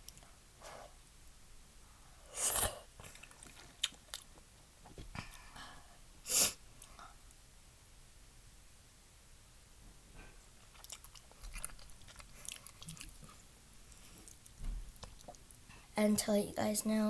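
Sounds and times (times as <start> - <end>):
chewing with mouth clicks: 3.0 - 4.5, 10.5 - 15.6.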